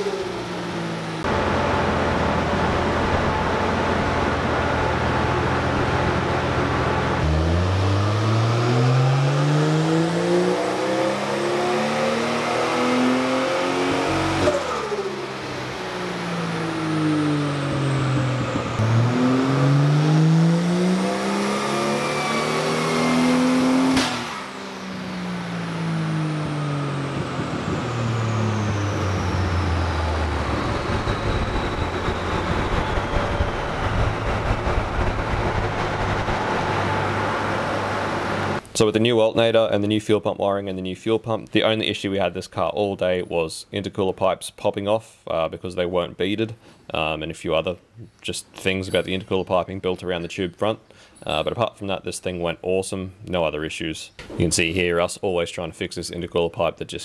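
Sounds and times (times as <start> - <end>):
engine revving on dyno: 0.0 - 38.6
sharp crack from engine: 23.9 - 24.6.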